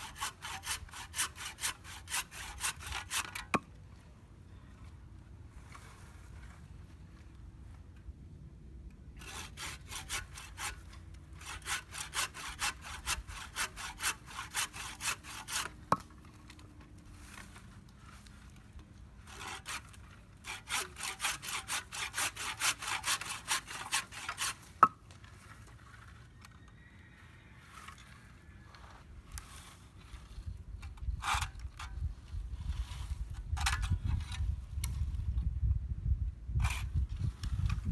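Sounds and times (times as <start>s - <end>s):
handsaw cutting dry wood: 0.0s - 3.6s, 9.2s - 16.3s, 19.2s - 26.0s.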